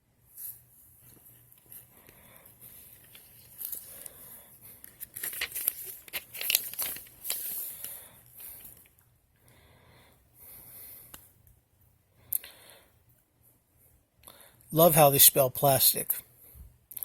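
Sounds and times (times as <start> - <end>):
paper pages rustling: 2.4 - 8.9.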